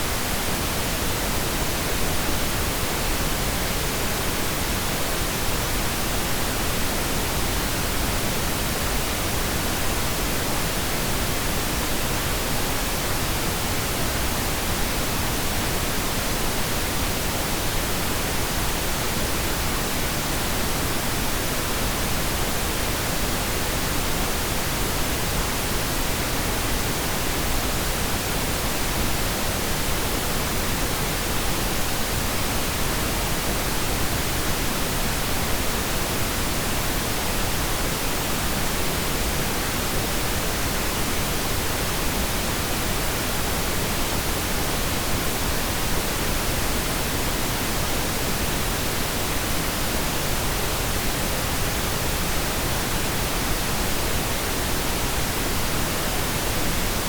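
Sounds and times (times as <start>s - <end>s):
steady pink noise hiss: 0.0s - 57.0s.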